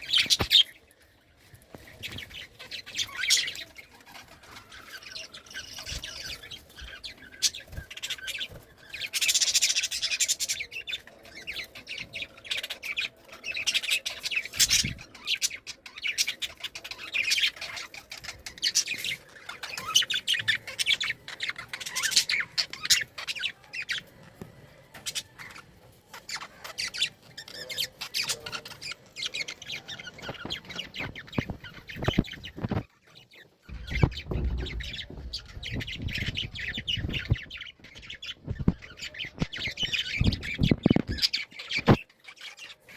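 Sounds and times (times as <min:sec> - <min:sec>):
budgerigars chattering: 0:25.1 - 0:42.8.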